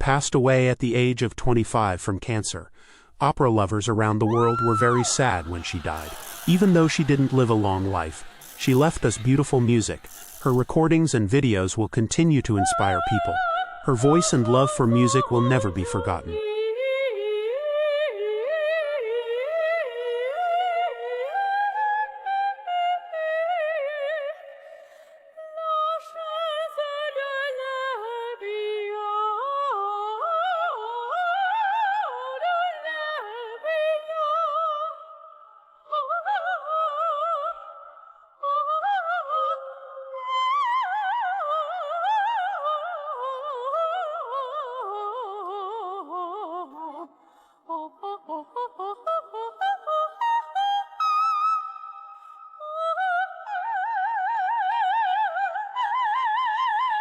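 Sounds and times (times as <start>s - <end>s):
singer breathing: 2.7s - 3.2s, 24.6s - 25.4s, 47.2s - 47.7s, 52.1s - 52.6s
soprano singing opera aria: 4.2s - 11.6s, 12.2s - 35.2s, 35.8s - 57.0s.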